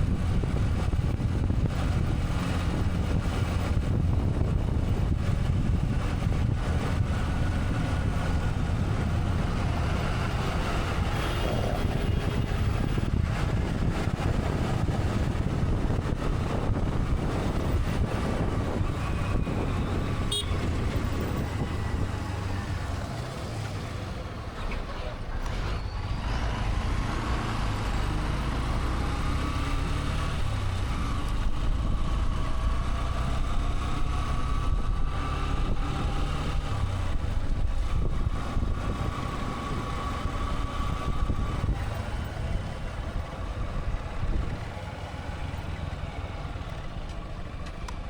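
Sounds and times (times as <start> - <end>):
passing traffic: 0.0 - 48.0
wind and motorcycle engine rumble: 0.0 - 48.0
vehicle horn: 20.1 - 20.9.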